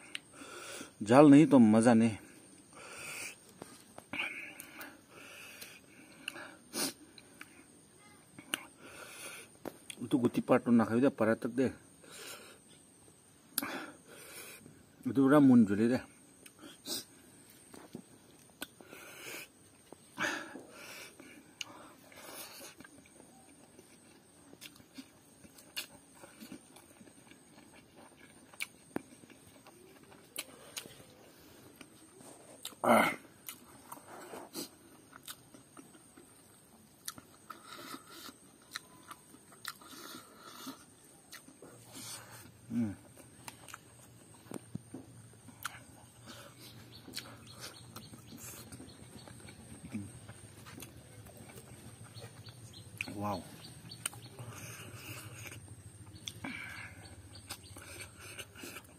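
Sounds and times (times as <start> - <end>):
man chewing food: 2.3 - 10.1, 11.8 - 15.0, 16.2 - 58.9
sharp mouth clicks: 8.4 - 8.7, 45.5 - 53.2, 53.9 - 56.5, 57.3 - 58.9.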